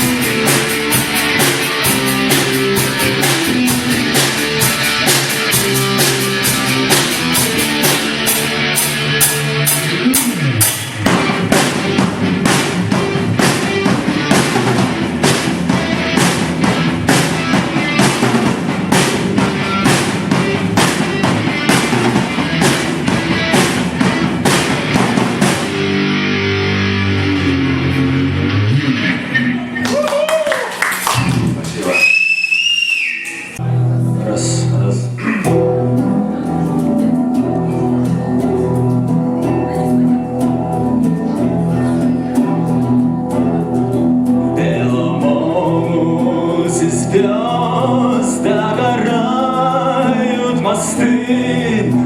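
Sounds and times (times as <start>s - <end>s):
drum kit beat: 0.0s - 28.1s
electric guitars: 0.0s - 32.2s, 32.8s - 52.0s.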